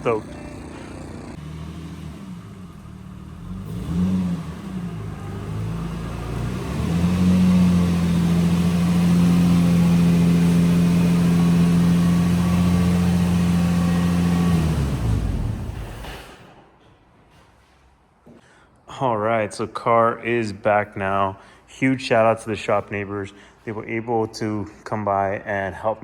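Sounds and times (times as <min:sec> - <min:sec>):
car engine revving: 0:00.0 - 0:16.4.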